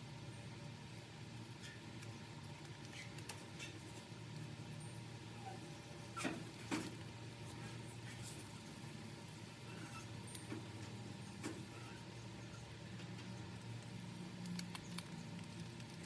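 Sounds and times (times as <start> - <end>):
faint clicks and light taps: 13.0 - 16.0.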